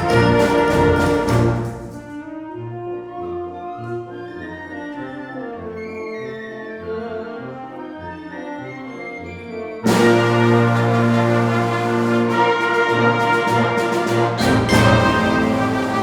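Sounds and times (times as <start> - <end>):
concert band playing: 0.0 - 2.3, 9.9 - 16.0.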